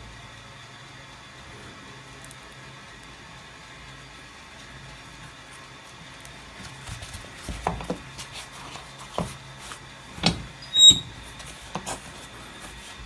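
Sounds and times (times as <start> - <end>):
press knocking and bumping: 10.2 - 11.2
brief high squeak: 10.6 - 11.2.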